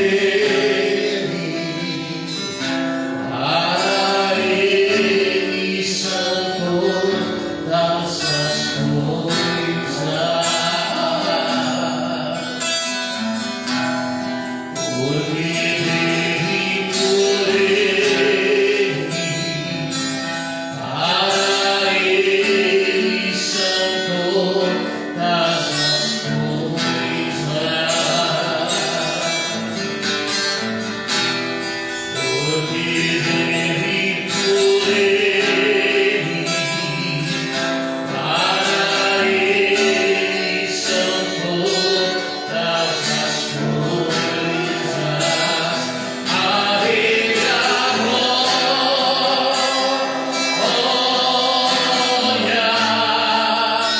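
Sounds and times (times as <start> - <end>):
worship song singing: 0.0 - 53.9.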